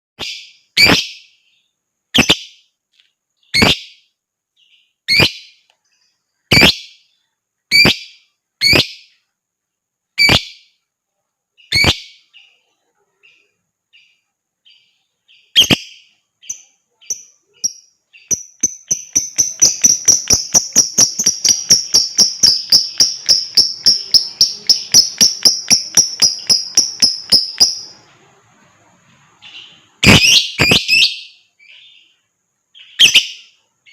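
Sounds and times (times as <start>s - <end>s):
lovebird chattering trill: 0.2s - 1.3s, 2.1s - 2.6s, 3.5s - 4.0s, 4.6s - 5.6s, 6.5s - 7.0s, 7.7s - 9.2s, 10.2s - 10.7s, 11.6s - 12.6s, 14.7s - 28.0s, 29.5s - 32.0s, 32.8s - 33.9s
lovebird chirping: 0.2s - 2.8s, 3.4s - 9.4s, 10.0s - 33.9s.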